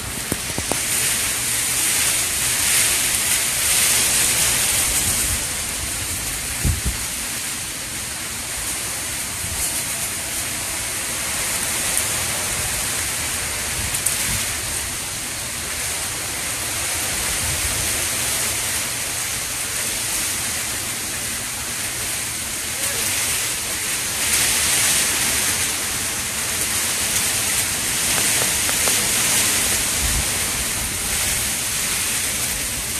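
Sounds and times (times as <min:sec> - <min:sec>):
wind and rain rushing: 0:00.0 - 0:32.9
low thumps of wind gusts: 0:03.4 - 0:11.7, 0:25.6 - 0:32.9.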